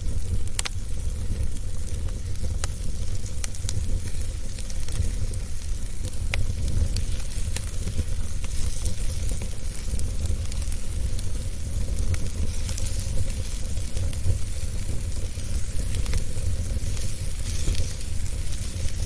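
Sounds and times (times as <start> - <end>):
fire crackling and popping: 0.0 - 19.0
wood fire rumbling and hissing: 0.0 - 19.0.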